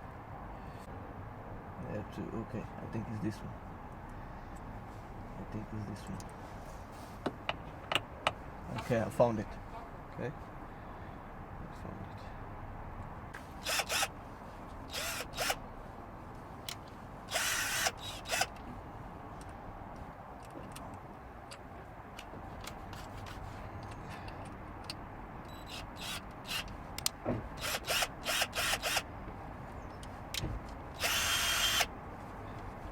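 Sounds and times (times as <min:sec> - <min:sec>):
cordless drill whirring in bursts: 0:13.6 - 0:14.1, 0:14.9 - 0:15.6, 0:17.3 - 0:18.5, 0:25.6 - 0:26.7, 0:27.6 - 0:29.1, 0:31.0 - 0:31.9
small clicks and handling noises: 0:19.4 - 0:25.0, 0:26.2 - 0:27.2.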